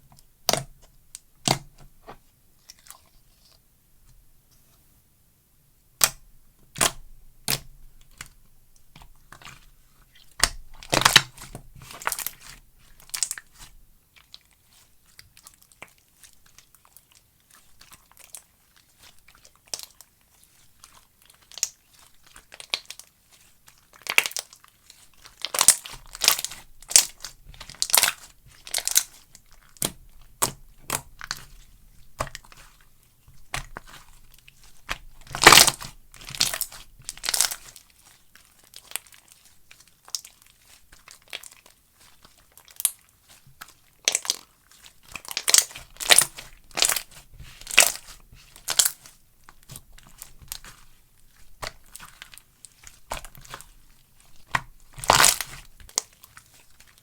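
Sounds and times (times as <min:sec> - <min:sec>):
slime pops and crackles: 0:06.0 - 0:08.3, 0:34.6 - 0:37.7, 0:45.1 - 0:50.8, 0:54.4 - 0:56.1
slime squished by hand: 0:06.0 - 0:57.0.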